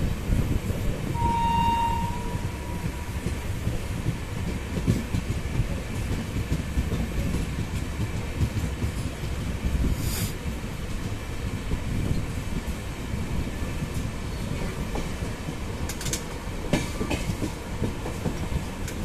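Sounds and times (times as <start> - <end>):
train wheels rumbling on track: 0.0 - 19.0
high train horn tone: 1.1 - 3.5.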